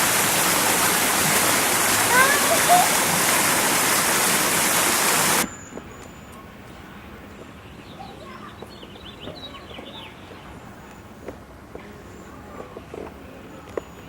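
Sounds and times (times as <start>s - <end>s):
garden waterfall rushing: 0.0s - 5.5s
low traffic hum: 0.0s - 14.0s.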